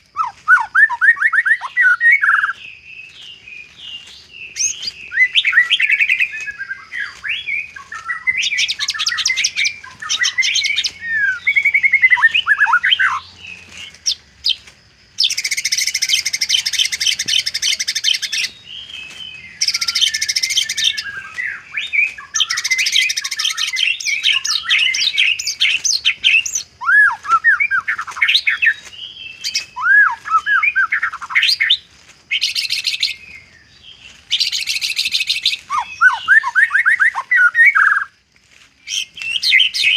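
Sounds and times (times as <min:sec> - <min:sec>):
dry rattling bird trills: 0:00.0 - 0:38.2
songbird singing: 0:00.0 - 0:39.9.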